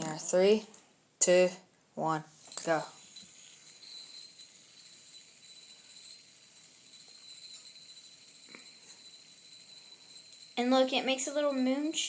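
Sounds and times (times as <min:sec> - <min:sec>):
fidget spinners whirring: 0:02.3 - 0:12.0.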